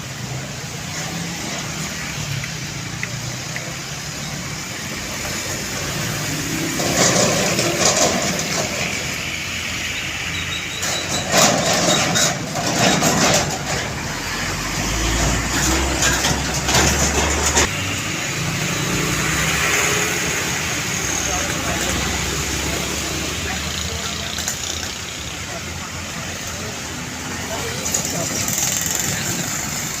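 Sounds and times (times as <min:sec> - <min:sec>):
heavy truck engines running: 0:00.0 - 0:30.0
road noise: 0:00.0 - 0:30.0
truck passing close by: 0:03.3 - 0:25.6.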